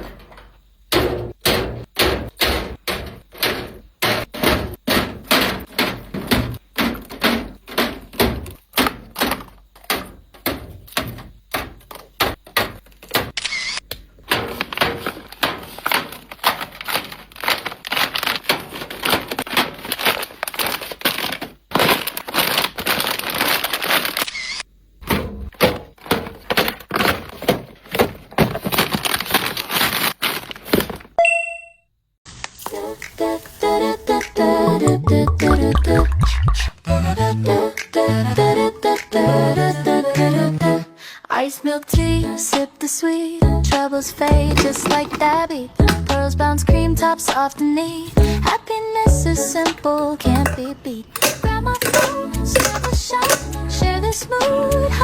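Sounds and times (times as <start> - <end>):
objects knocking and clicking: 0.0 - 13.4, 44.2 - 46.2, 49.6 - 53.8
rustling: 14.2 - 24.2, 44.1 - 46.4.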